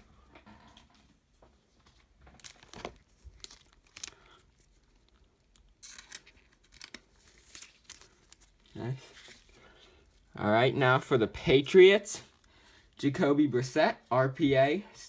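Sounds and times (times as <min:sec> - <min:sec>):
plastic packaging crinkling: 0:01.8 - 0:10.4.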